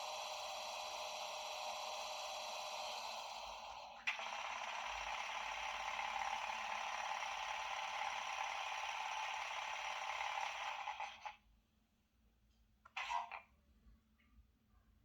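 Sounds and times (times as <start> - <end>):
model locomotive running sound: 0.0 - 11.4.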